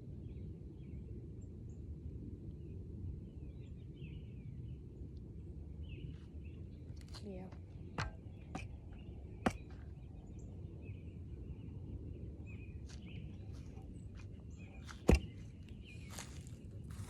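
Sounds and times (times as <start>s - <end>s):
steady low rumble: 0.0s - 17.0s
sharp knocks: 8.0s - 9.8s.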